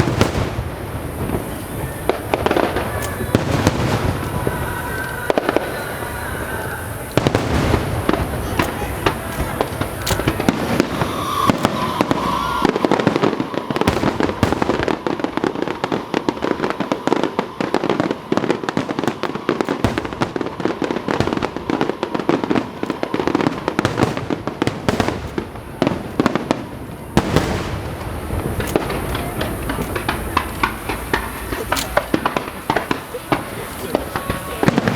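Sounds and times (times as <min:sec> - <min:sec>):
fireworks bangs pops and crackles: 0:00.0 - 0:34.9.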